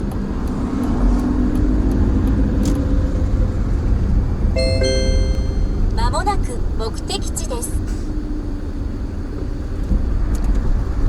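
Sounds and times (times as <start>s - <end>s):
car road and engine rumble: 0.0s - 11.0s
two-tone electronic chime: 4.6s - 6.2s.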